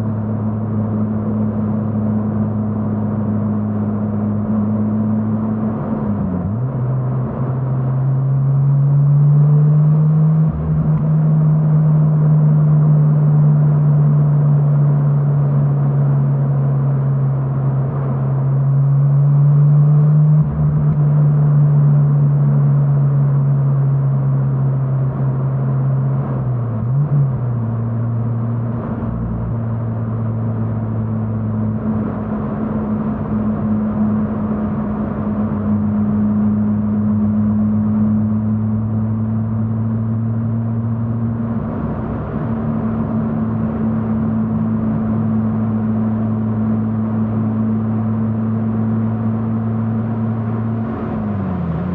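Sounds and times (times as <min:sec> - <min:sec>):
rotary engine cruising: 0:27.6 - 0:51.9.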